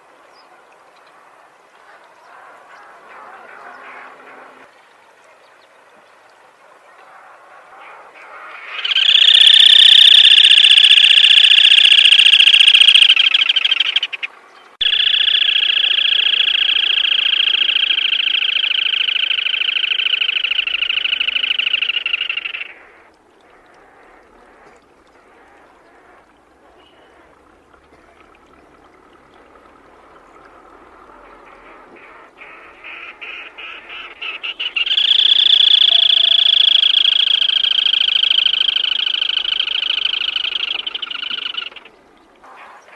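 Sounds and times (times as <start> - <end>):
bird rattling trills: 8.8 - 14.2, 14.8 - 22.7, 34.7 - 41.8.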